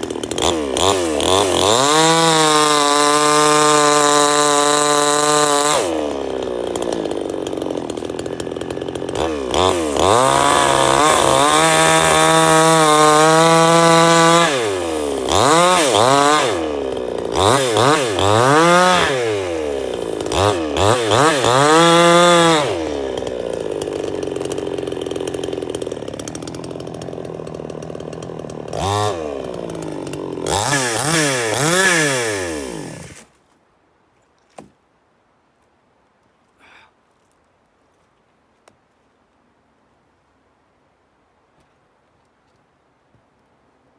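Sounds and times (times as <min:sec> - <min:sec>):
chainsaw engine revving: 0:00.0 - 0:33.3.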